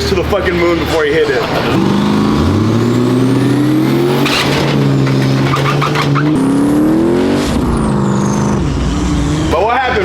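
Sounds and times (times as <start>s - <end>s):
truck engine at high revs: 0.2s - 10.0s.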